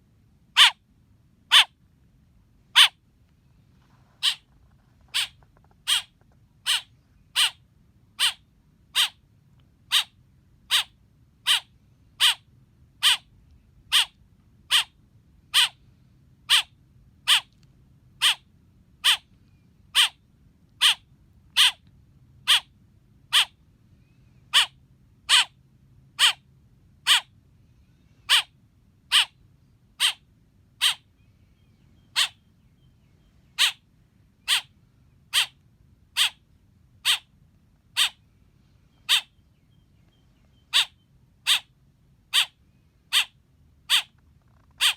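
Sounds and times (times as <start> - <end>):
baby bird chirping: 0.6 - 0.8, 1.5 - 1.8, 2.8 - 3.0, 4.2 - 4.5, 5.1 - 7.6, 8.2 - 9.2, 9.9 - 13.3, 13.9 - 15.8, 16.4 - 17.6, 18.2 - 19.3, 19.9 - 20.2, 20.8 - 21.8, 22.4 - 22.7, 23.3 - 23.6, 24.5 - 25.6, 26.2 - 26.4, 27.0 - 27.3, 28.2 - 28.5, 29.1 - 29.4, 30.0 - 30.2, 30.8 - 32.9, 33.5 - 33.8, 34.4 - 34.7, 35.3 - 36.4, 37.0 - 37.3, 37.9 - 38.2, 38.9 - 41.7, 42.3 - 44.9.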